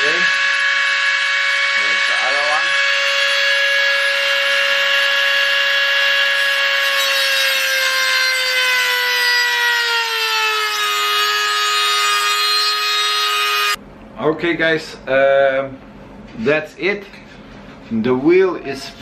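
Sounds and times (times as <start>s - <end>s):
rotary tool grinding metal: 0.0s - 13.8s.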